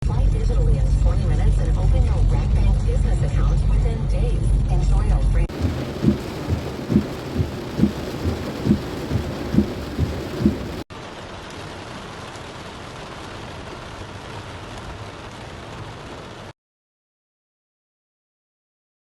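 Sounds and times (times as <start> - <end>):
regular low thump: 5.5 - 10.8
heavy rain falling: 5.5 - 16.5.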